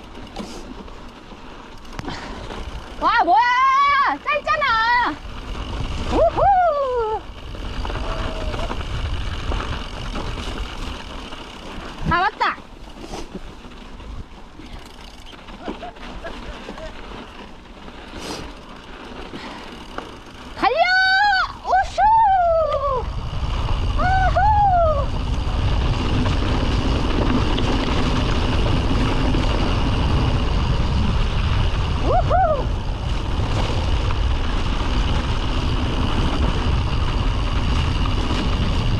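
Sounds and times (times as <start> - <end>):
mountain bike on snowy trail: 0.0 - 38.9
wind rumbling on microphone: 1.8 - 38.9
rider whooping: 2.0 - 5.1, 5.9 - 9.5, 20.6 - 26.6, 28.0 - 34.0.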